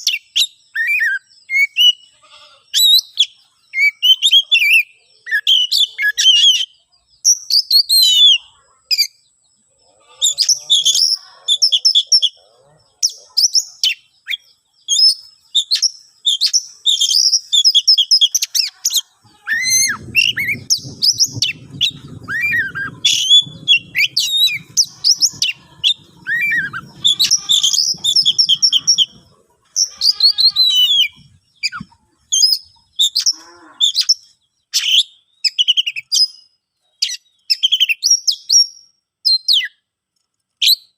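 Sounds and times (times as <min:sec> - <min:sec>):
bird singing whistles and chatters: 0:00.0 - 0:02.0, 0:02.8 - 0:09.2, 0:10.3 - 0:39.8
low rumble: 0:19.3 - 0:29.4.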